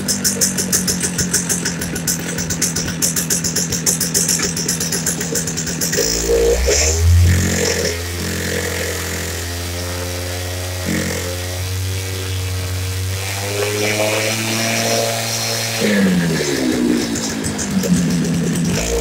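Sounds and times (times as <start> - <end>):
cut-off saw engine revving: 0.2 - 19.0.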